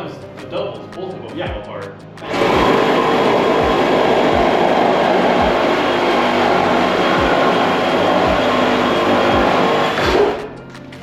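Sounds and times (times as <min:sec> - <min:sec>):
loud machine noise: 0:02.2 - 0:10.6.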